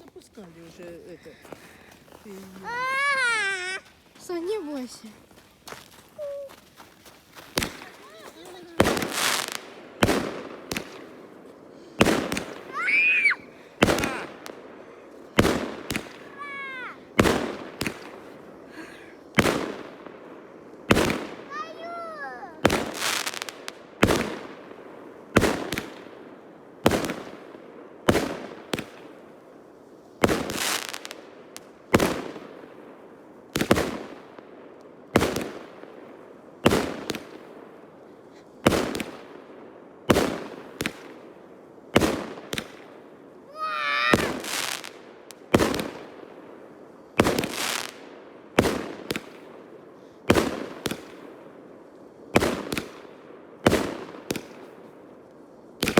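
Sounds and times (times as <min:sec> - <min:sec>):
fireworks bangs: 0:00.0 - 0:05.1, 0:07.2 - 0:54.9
fireworks whistle: 0:12.3 - 0:14.5.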